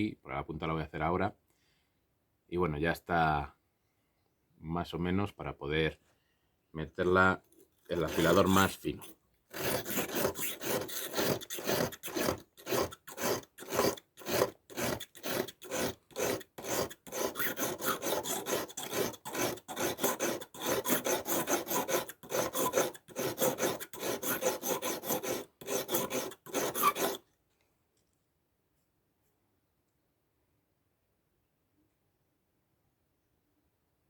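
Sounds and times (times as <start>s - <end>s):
knife scraping on sharpening stone: 7.9s - 27.2s.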